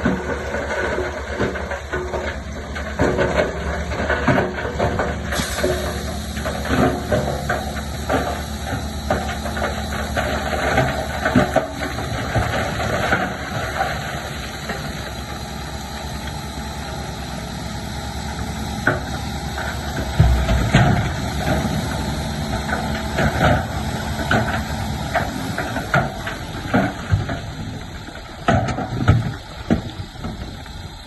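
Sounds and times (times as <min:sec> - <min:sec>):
metal clanks and rattles: 0:00.0 - 0:14.0
diesel engine running: 0:00.0 - 0:31.0
heavy low thud: 0:20.0 - 0:25.0.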